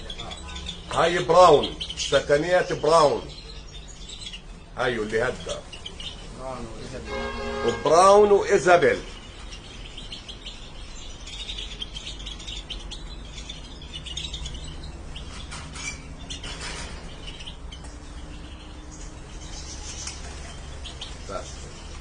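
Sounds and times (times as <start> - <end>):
finches chirping and twittering: 0.0 - 22.0.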